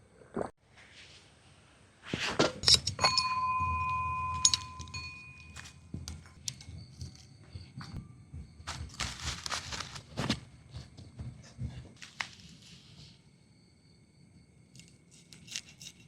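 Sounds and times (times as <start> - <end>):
metal objects clinking: 2.6 - 8.0
metallic ringing tone: 2.7 - 8.4.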